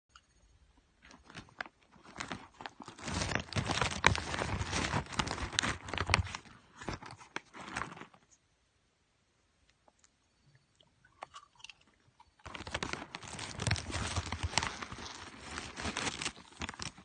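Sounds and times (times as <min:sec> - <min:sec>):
plastic wrapper crinkling and tearing: 0:01.0 - 0:08.2, 0:12.4 - 0:17.0.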